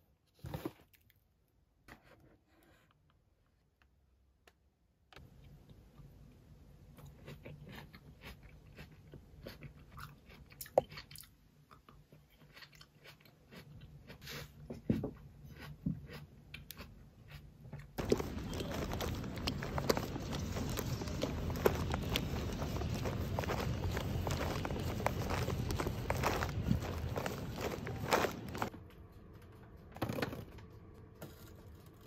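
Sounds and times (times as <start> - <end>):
outdoor noise: 3.7 - 32.0
chewing crisp grapes: 6.9 - 28.7.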